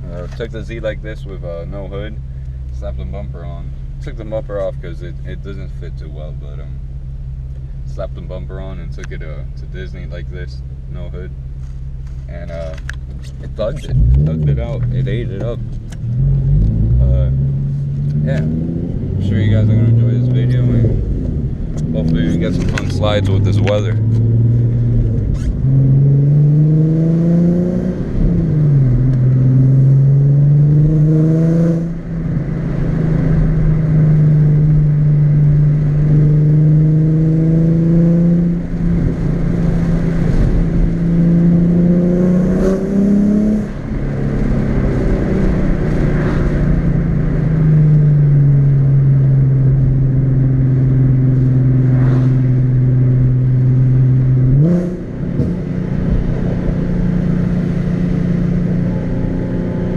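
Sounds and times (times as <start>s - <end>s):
car engine revving through gears: 12.5s - 59.9s.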